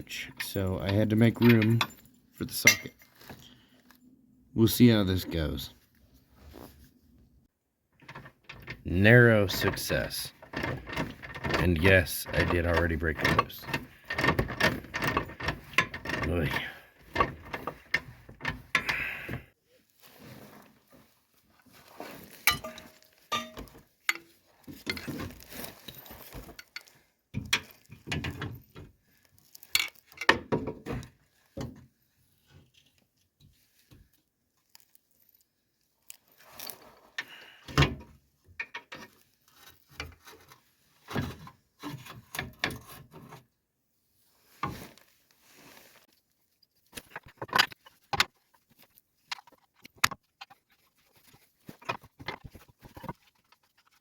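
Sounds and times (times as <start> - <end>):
metal hand tools clinking: 22.4 - 24.3.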